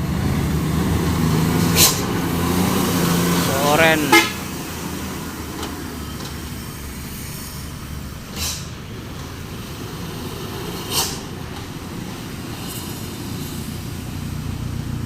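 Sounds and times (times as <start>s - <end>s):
truck diesel engines rumbling: 0.0s - 15.0s
air brake hisses: 1.6s - 2.2s, 6.9s - 8.9s, 9.6s - 11.4s.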